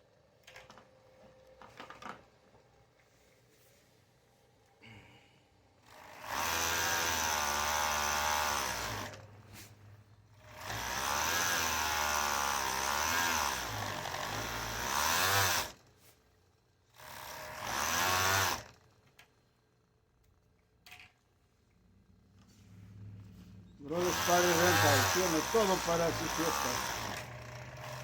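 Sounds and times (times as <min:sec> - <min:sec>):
electric sewing machine stitching: 0:05.8 - 0:09.3, 0:10.4 - 0:15.8, 0:16.9 - 0:18.8, 0:23.8 - 0:28.0.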